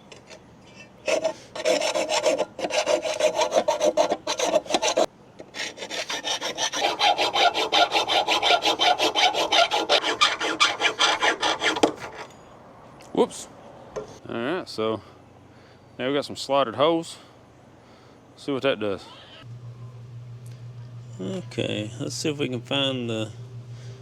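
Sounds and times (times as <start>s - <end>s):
file rasping on metal: 1.0s - 12.3s.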